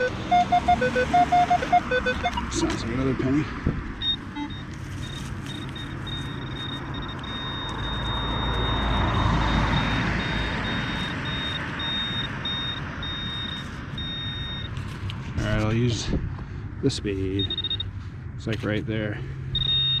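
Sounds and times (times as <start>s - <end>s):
high-pitched electronic tone: 0.0s - 2.8s
vehicle passing on street: 0.0s - 20.0s.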